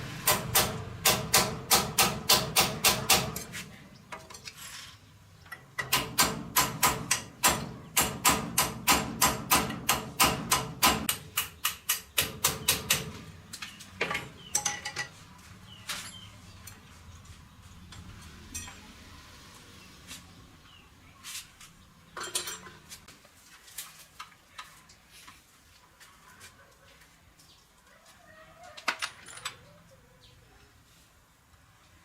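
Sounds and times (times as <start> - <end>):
knocks and clinks: 14.0 - 15.2, 17.9 - 18.9, 22.2 - 22.9.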